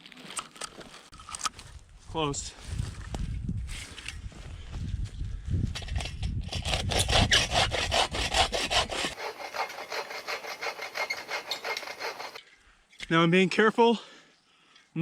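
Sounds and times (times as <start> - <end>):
hand saw cutting wood: 6.4 - 12.4.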